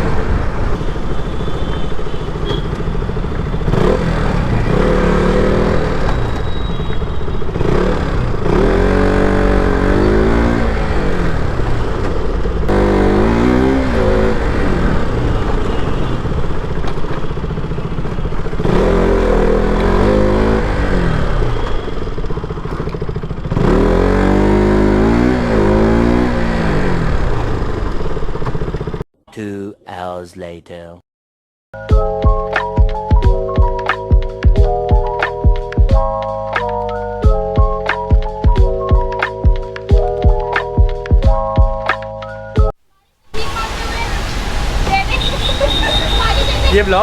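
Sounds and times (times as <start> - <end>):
motorcycle engine revving: 0.0 - 29.0, 43.4 - 47.0.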